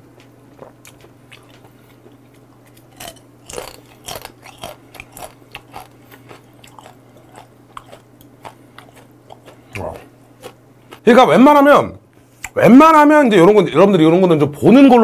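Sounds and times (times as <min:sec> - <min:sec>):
crab shell crunching: 0:00.2 - 0:11.0.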